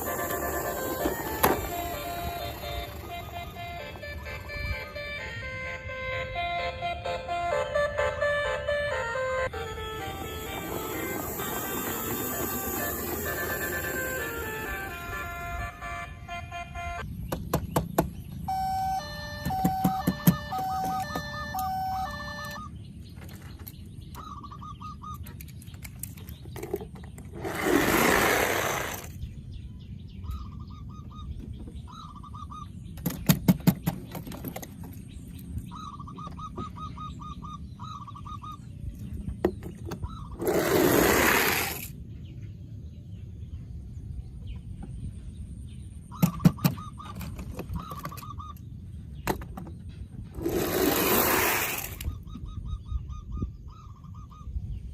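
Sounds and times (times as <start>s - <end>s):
toy short beeping tones: 18.5s - 22.7s.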